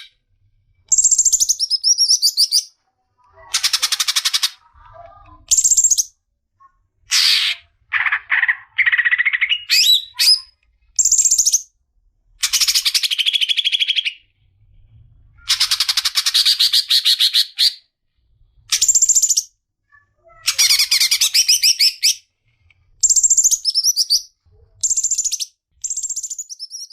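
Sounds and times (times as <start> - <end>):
bird singing rapid chattering: 0.9 - 2.7, 5.5 - 6.1, 8.4 - 11.7, 18.7 - 19.5, 23.0 - 26.9.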